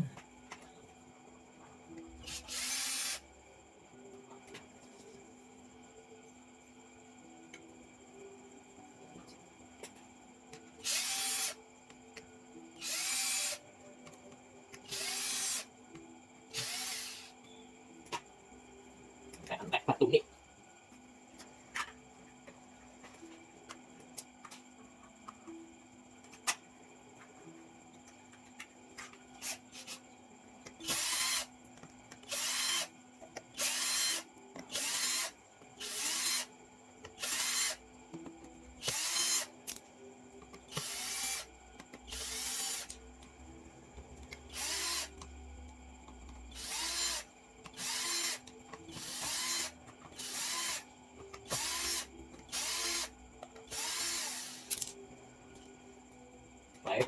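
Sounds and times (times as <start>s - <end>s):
power drill driving screws: 2.3s - 3.2s, 10.8s - 11.6s, 12.8s - 13.6s, 14.9s - 15.6s, 16.6s - 17.3s, 30.8s - 31.5s, 32.3s - 32.9s, 33.6s - 36.5s, 37.2s - 37.8s, 38.8s - 39.5s, 40.7s - 41.5s, 42.1s - 43.0s, 44.5s - 45.1s, 46.5s - 47.2s, 47.8s - 50.8s, 51.5s - 53.1s, 53.7s - 54.9s.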